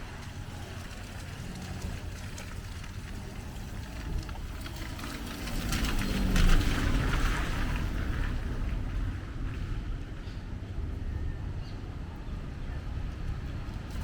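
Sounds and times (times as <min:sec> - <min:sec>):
passing vehicle engine: 0:00.0 - 0:10.4
low traffic rumble: 0:00.0 - 0:14.0.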